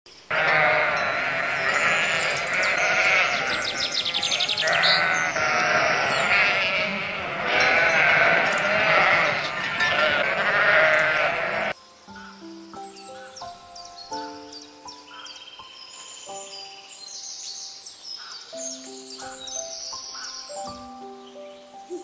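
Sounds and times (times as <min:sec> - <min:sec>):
sheep bleating: 0:00.3 - 0:11.8.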